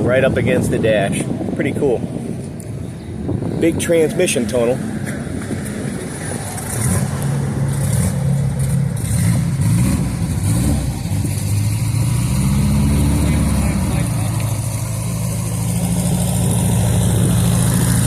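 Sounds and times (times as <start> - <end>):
car engine revving: 4.6 - 18.0.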